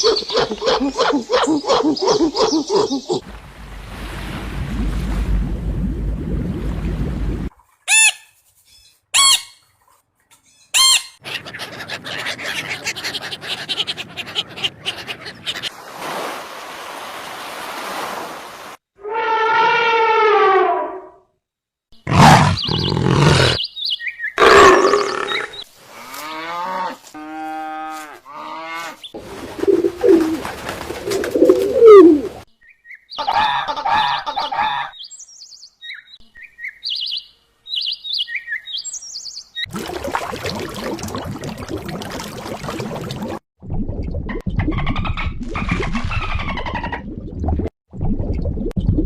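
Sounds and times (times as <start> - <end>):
high bird chirps: 22.5 - 25.6, 35.0 - 39.7.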